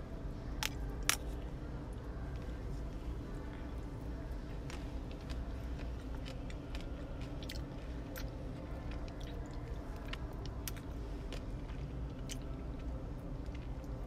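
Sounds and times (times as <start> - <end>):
low steady hum: 0.0 - 14.0
chewing crunchy chocolate: 3.6 - 14.0.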